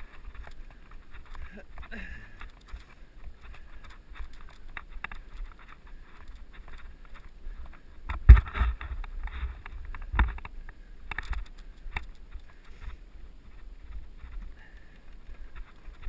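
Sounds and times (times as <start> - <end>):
mountain bike rattling: 0.0 - 10.5.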